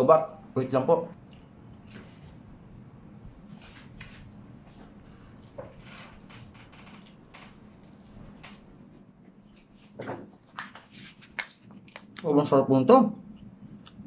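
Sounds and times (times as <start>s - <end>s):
faint chewing: 1.1s - 2.4s.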